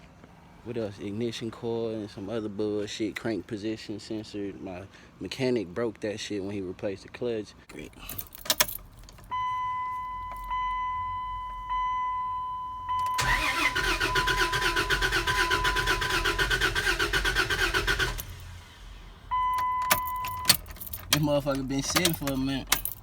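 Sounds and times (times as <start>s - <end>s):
dashboard warning chime: 8.0s - 16.4s, 19.2s - 23.0s
engine cranking on starter: 12.9s - 22.9s.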